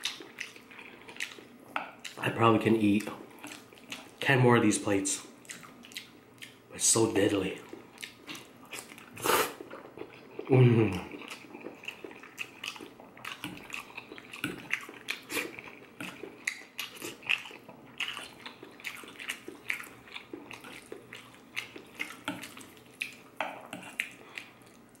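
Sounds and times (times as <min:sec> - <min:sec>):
wet chewing mouth clicks: 0:05.4 - 0:06.6, 0:08.0 - 0:25.0.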